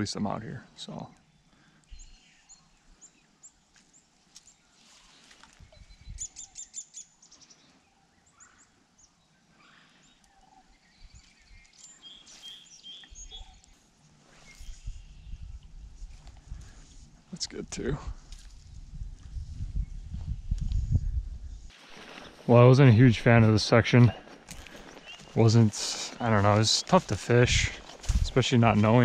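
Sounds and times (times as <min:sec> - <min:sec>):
songbirds chirping: 0:00.0 - 0:29.0
bird trill: 0:05.8 - 0:08.8.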